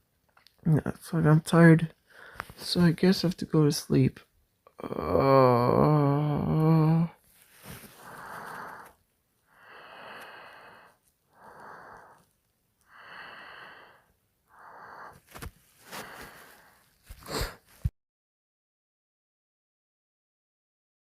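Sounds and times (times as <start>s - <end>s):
person snoring: 4.8s - 7.2s, 8.0s - 12.2s, 12.9s - 15.2s, 15.9s - 17.7s.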